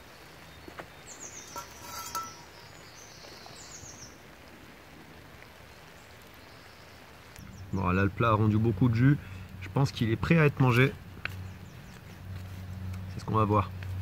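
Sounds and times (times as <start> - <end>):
faint bird song: 0.0 - 14.0.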